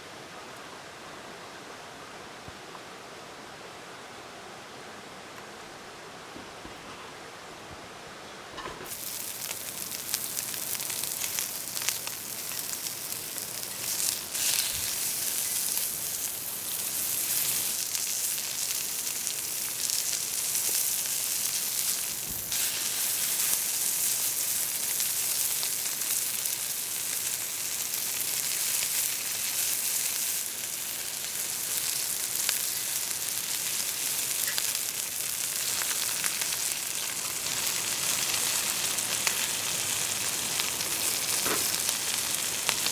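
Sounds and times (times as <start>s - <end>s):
pork sizzling as it fries: 8.8s - 42.9s.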